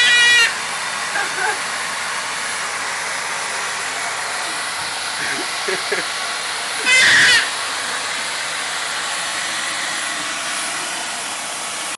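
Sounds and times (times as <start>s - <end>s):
baby squealing: 0.0s - 0.6s, 6.8s - 7.5s
vacuum cleaner running: 0.0s - 11.9s.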